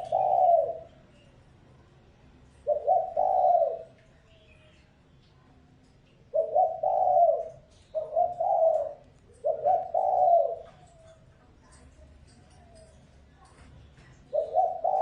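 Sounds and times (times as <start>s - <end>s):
dove cooing: 0.0s - 1.0s, 2.6s - 4.0s, 6.3s - 11.8s, 14.1s - 15.0s.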